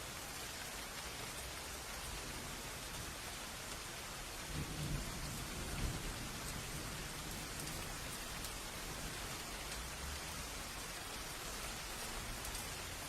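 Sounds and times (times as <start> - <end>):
rain hissing: 3.7 - 13.0
thunder rumble: 4.5 - 9.5.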